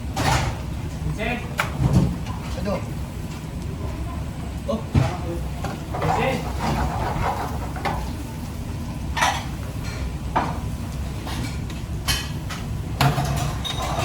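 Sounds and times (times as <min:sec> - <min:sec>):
pans and utensils clattering: 0:00.1 - 0:00.6, 0:05.0 - 0:08.2, 0:09.1 - 0:10.6, 0:11.2 - 0:14.0.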